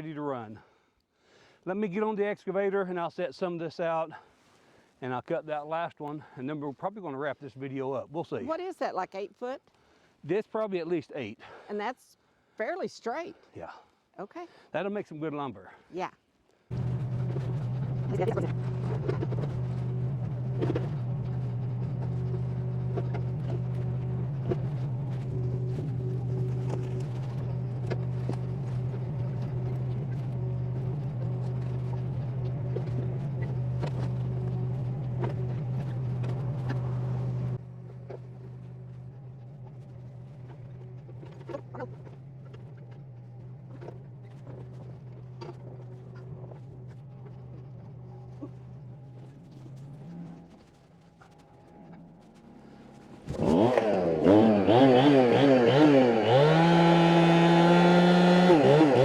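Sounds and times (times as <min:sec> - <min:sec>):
excavator diesel engine: 0:16.7 - 0:59.0.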